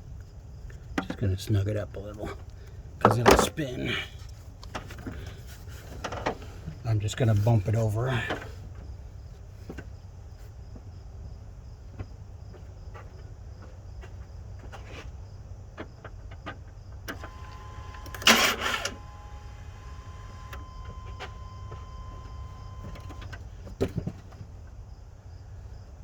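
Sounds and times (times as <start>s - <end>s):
steady low hum: 17.0s - 25.8s
engine starter cranking: 17.1s - 23.5s.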